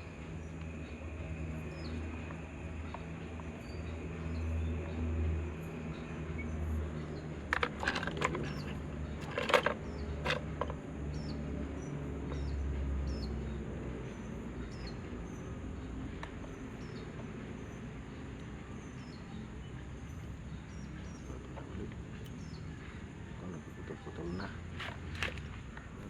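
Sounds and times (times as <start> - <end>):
handling clicks and scrapes: 7.5 - 10.8, 24.7 - 25.9.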